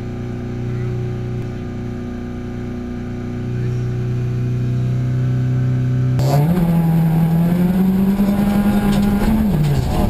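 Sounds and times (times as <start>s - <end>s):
rally car engine revving: 3.5s - 10.0s
tyre and gravel noise: 8.0s - 10.0s.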